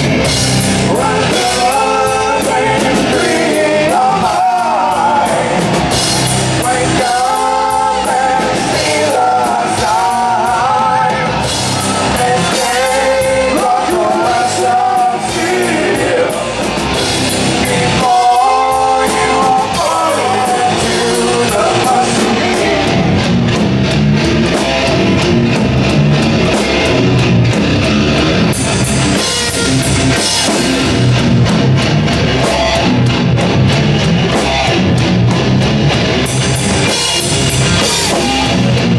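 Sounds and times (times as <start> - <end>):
drum kit: 0.0 - 38.9
electric guitars: 0.0 - 38.9
person singing: 0.8 - 6.0, 6.6 - 16.6, 17.4 - 23.3.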